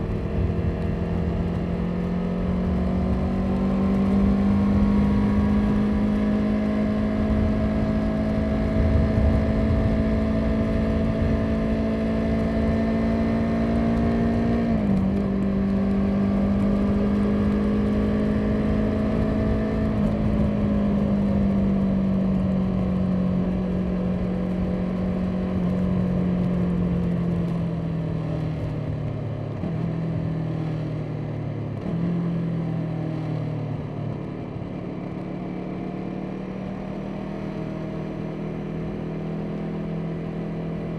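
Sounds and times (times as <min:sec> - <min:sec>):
wind rumble on microphone: 0:00.0 - 0:30.3
motorcycle engine running: 0:00.0 - 0:40.9.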